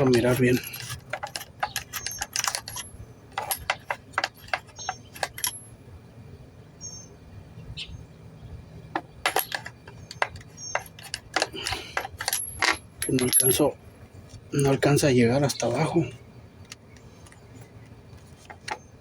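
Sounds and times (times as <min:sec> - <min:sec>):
metal socket and wrench clinking: 0:00.0 - 0:05.8, 0:09.0 - 0:13.6.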